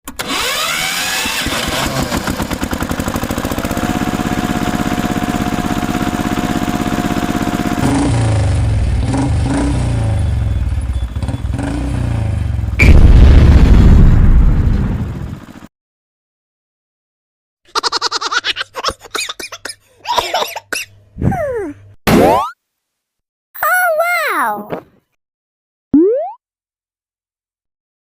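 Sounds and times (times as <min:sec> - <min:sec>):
deep heavy engine: 0:00.3 - 0:15.6
motor vehicle engines pulsing: 0:08.6 - 0:12.7.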